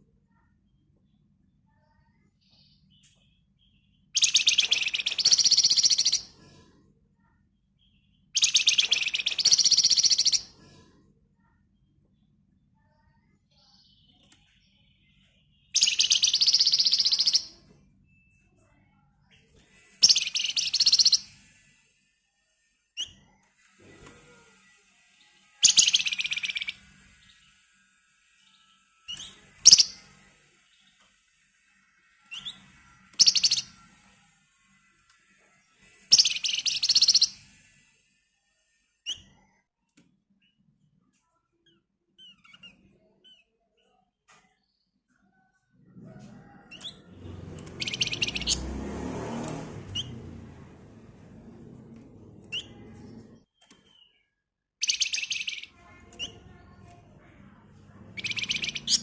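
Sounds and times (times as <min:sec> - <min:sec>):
short rising bird chirps: 0:04.2 - 0:06.2, 0:08.4 - 0:10.4, 0:15.8 - 0:17.6, 0:20.0 - 0:21.4, 0:33.2 - 0:33.7, 0:36.1 - 0:37.5, 0:47.6 - 0:50.4, 0:53.6 - 0:55.7, 0:58.2 - 0:59.0
songbird rattling trills: 0:04.2 - 0:06.2, 0:08.4 - 0:10.4, 0:15.8 - 0:17.5, 0:20.0 - 0:21.3, 0:25.6 - 0:26.8, 0:29.1 - 0:30.0, 0:33.2 - 0:33.7, 0:36.1 - 0:37.4, 0:54.8 - 0:56.4, 0:58.2 - 0:59.0.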